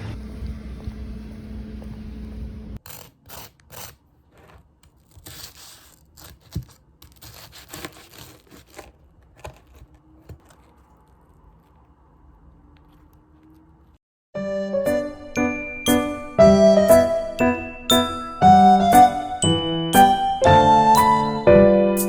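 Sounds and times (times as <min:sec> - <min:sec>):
material tearing: 0:02.8 - 0:12.0
material rustling and crinkling: 0:04.1 - 0:14.0.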